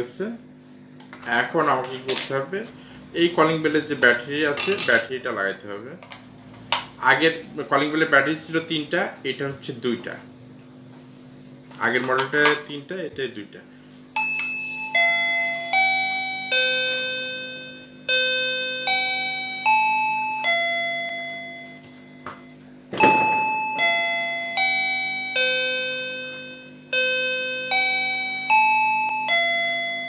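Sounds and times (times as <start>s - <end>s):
doorbell electronic chime tune: 14.2s - 30.0s
click and short thump: 22.9s - 23.5s.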